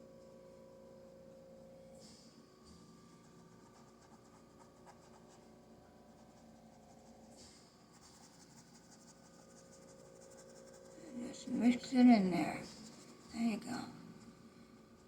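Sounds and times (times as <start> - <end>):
low electrical hum: 0.0 - 15.0
paintbrush scratchy strokes: 3.2 - 15.0.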